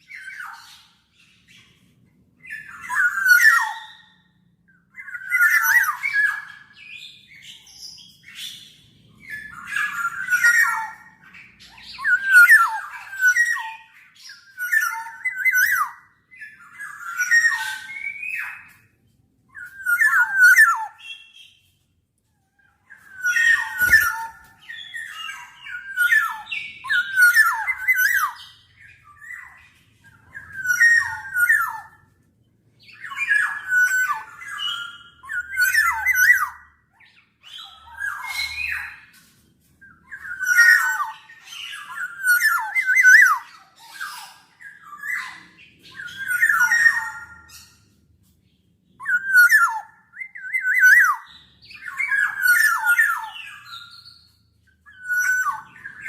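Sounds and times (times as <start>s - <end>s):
oriole scratchy calls: 23.0s - 26.5s.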